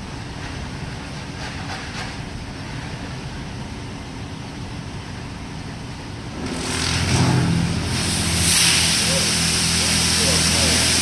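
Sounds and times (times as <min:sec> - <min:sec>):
car wash machinery hum and hiss: 0:00.0 - 0:11.0
low motor hum: 0:06.1 - 0:11.0.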